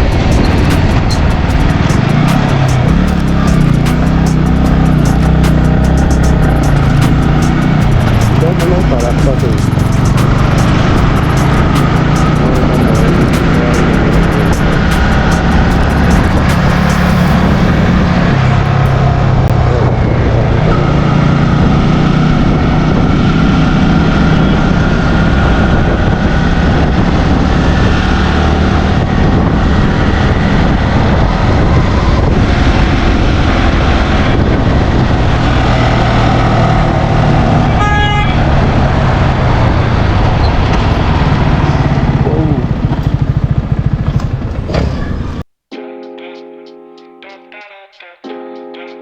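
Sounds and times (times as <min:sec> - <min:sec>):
motorcycle engine and road noise: 0:00.0 - 0:45.5
vehicle horn honk: 0:37.6 - 0:38.5.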